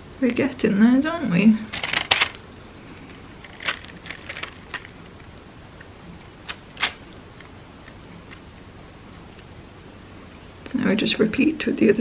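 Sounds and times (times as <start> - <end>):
crepe paper crinkling: 1.7 - 5.4, 6.4 - 7.1.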